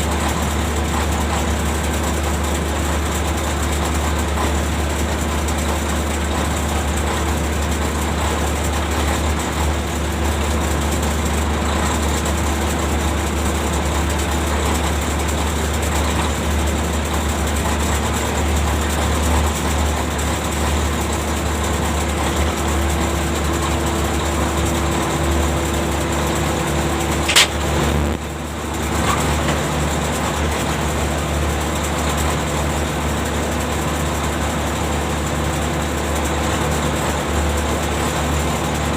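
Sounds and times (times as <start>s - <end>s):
ship deck machinery humming: 8.8s - 34.7s
sharp click: 27.2s - 27.8s.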